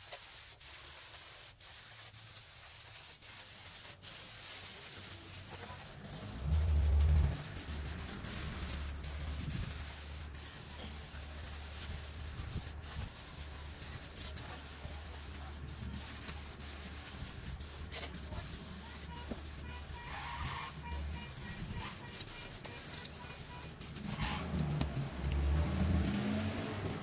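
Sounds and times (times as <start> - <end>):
spray hissing: 0.0 - 24.4
low rumble: 6.2 - 9.4.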